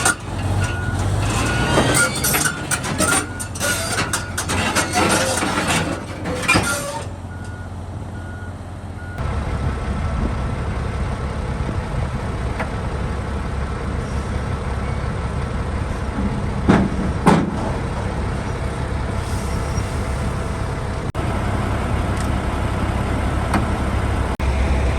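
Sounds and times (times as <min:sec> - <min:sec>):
diesel engine rumbling: 0:00.0 - 0:24.9
reversing alarm beeps: 0:07.3 - 0:09.2
loud air hisses: 0:19.2 - 0:20.8.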